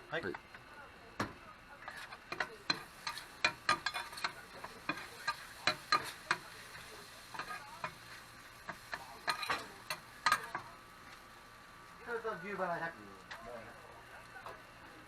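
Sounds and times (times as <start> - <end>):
meat sizzling on grill: 0.0 - 15.0
metal utensils clicking on grill: 1.8 - 11.2.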